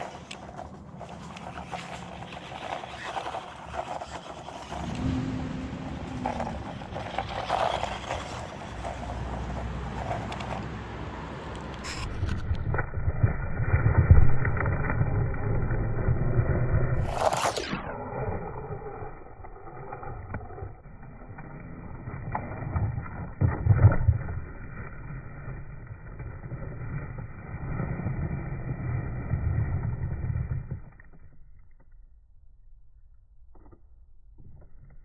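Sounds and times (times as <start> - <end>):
small electric motor running: 0.0 - 5.1
toy truck rumbling and knocking: 0.0 - 31.6
quick falling whine: 11.8 - 21.0.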